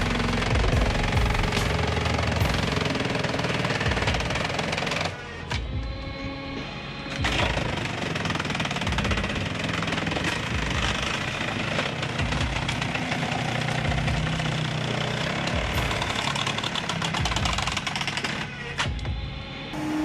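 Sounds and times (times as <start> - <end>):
heavy machine engine running: 0.0 - 18.7, 19.8 - 20.0
mechanical clatter and knocking: 7.1 - 19.0.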